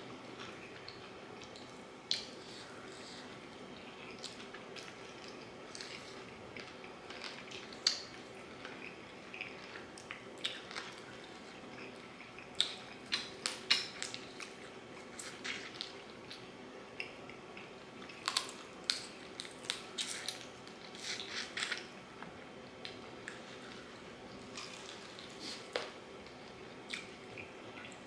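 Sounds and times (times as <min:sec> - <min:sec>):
low room hum: 0:00.0 - 0:28.0
chewing and crunching fried chicken: 0:00.1 - 0:28.0.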